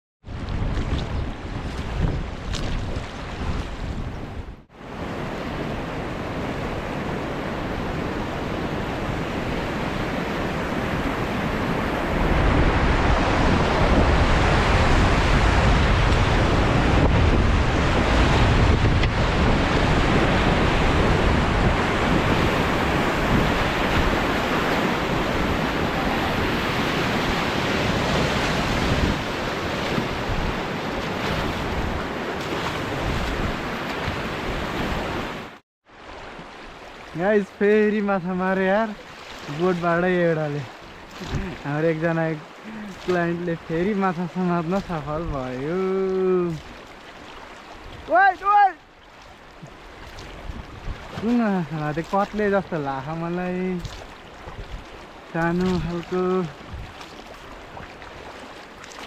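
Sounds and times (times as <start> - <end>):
wind rumbling on microphone: 0.2 - 36.6, 38.8 - 48.1, 49.4 - 59.0
river water rushing: 4.7 - 59.0.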